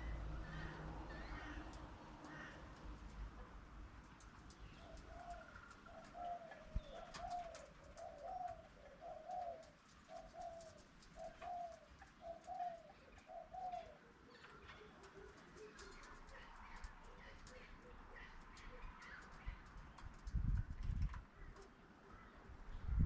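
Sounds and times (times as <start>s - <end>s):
bird cooing: 4.7s - 19.3s.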